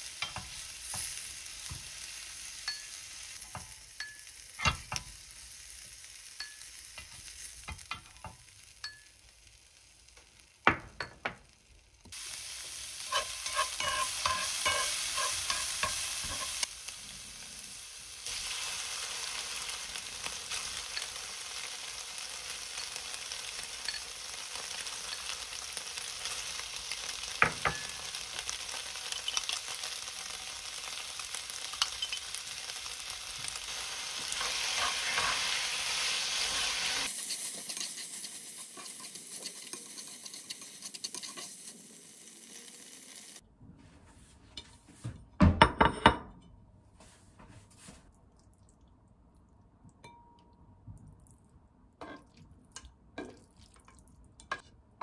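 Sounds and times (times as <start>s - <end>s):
noodles sizzling in frying pan: 0.0s - 43.4s.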